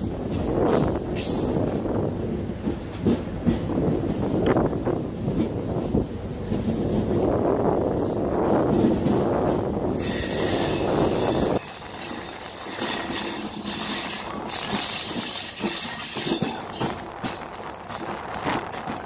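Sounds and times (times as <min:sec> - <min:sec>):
wind rush on microphone: 0:00.0 - 0:19.0
wheels clicking over rail joints: 0:07.9 - 0:19.0
train wheels squealing: 0:09.9 - 0:17.5.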